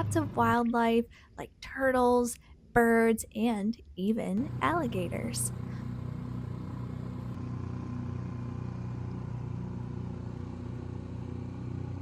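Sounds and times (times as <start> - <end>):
small outboard motor buzzing: 4.4 - 12.0.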